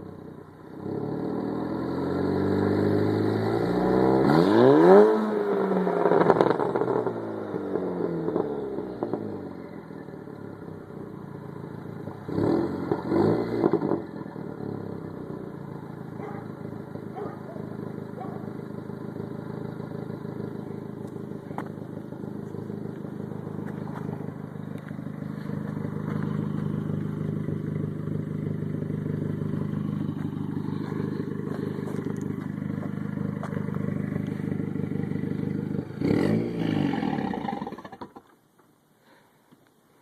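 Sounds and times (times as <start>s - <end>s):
engine revving: 0.7s - 9.6s, 12.0s - 15.4s, 16.1s - 38.2s
car engine idling: 6.0s - 13.2s, 14.0s - 38.5s.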